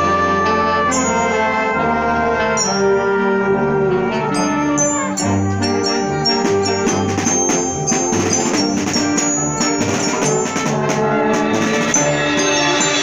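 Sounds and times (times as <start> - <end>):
wind band playing: 0.0 - 13.0
percussion accents: 4.3 - 13.0.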